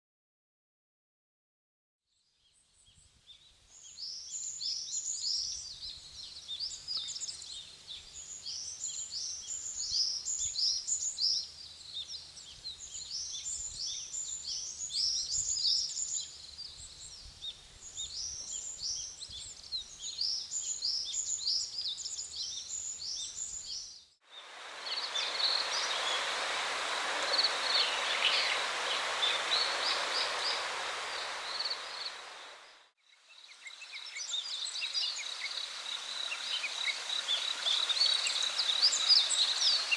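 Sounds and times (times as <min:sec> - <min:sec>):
songbird singing: 0:02.4 - 0:39.9
rushing water: 0:24.3 - 0:32.9, 0:33.8 - 0:39.9
high bird chirps: 0:24.8 - 0:32.3.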